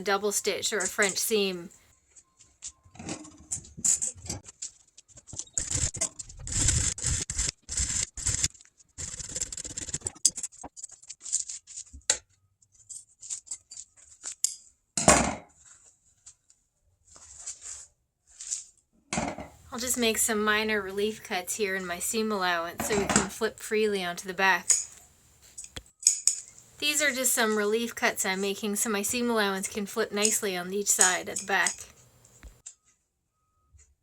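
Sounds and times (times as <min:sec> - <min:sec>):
sharp clicks and snips: 0:03.9 - 0:11.1.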